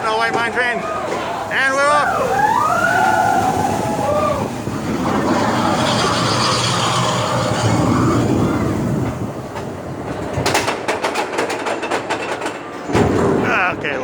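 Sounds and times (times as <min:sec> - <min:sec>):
roller coaster rumbling on track: 0:00.0 - 0:14.0.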